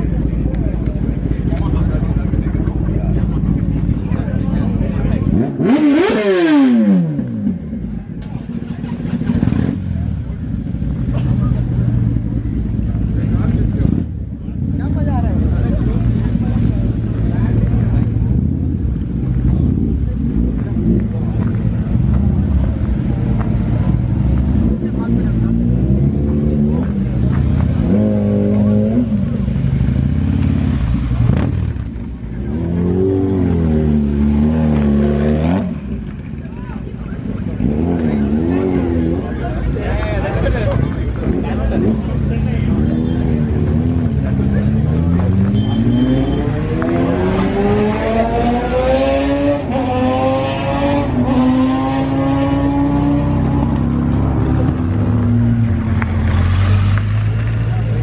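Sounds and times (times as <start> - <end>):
motorcycle engines revving: 0.0 - 58.0.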